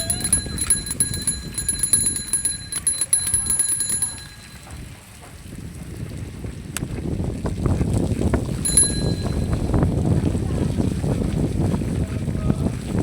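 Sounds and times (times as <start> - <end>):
bicycle bell ringing rapidly: 0.0 - 4.8, 8.6 - 9.8.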